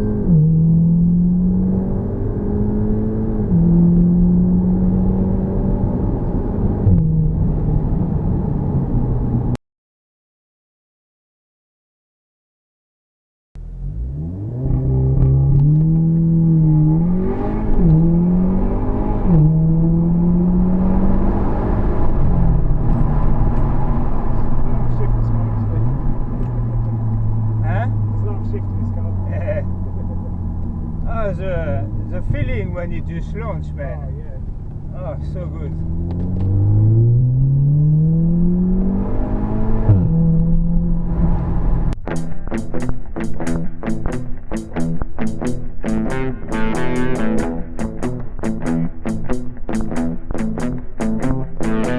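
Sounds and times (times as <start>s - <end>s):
car engine accelerating hard: 0.0s - 9.5s, 13.6s - 42.5s
guitar music: 42.0s - 51.9s.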